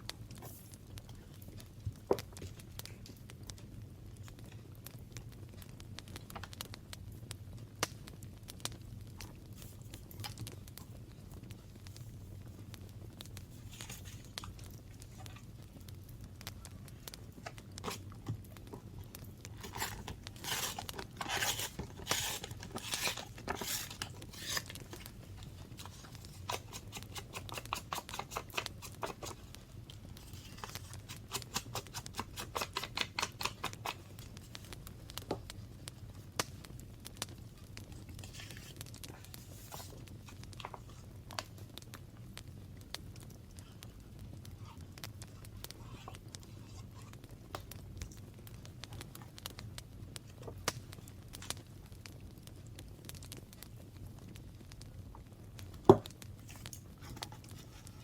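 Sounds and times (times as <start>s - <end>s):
paper rustling: 13.5s - 15.4s, 19.6s - 29.6s, 30.2s - 34.7s, 38.2s - 41.0s.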